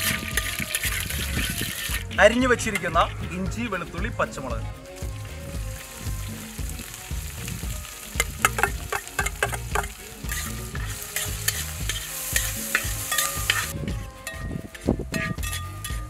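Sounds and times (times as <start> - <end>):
food frying in oil: 0.0 - 2.2, 4.8 - 13.8
metal spatula scraping and tapping pan: 0.0 - 3.0, 8.1 - 16.0.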